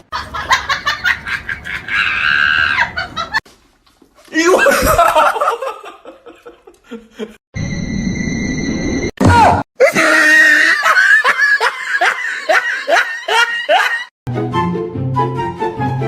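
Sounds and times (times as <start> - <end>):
people laughing and shrieking: 0.1 - 3.4, 9.8 - 14.1.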